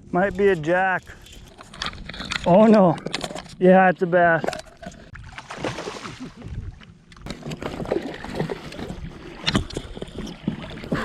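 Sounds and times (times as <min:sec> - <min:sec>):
water splashing against kayak: 0:05.0 - 0:11.0.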